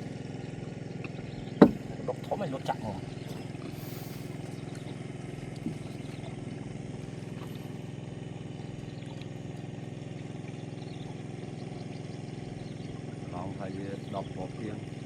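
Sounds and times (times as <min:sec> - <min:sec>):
small engine running: 0:00.0 - 0:15.0
short knock: 0:01.6 - 0:01.9.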